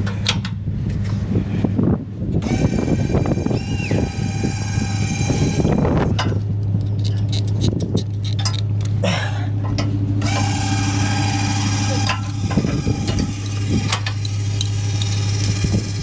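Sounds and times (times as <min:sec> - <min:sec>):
low hum: 0:00.0 - 0:16.0
small motor whirring: 0:02.4 - 0:06.2, 0:10.2 - 0:16.0.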